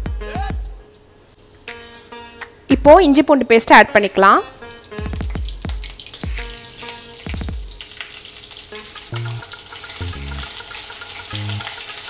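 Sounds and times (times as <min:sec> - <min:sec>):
soft background music: 0:00.0 - 0:12.0
paste sizzling in hot oil: 0:04.7 - 0:12.0
steel ladle stirring: 0:05.8 - 0:12.0.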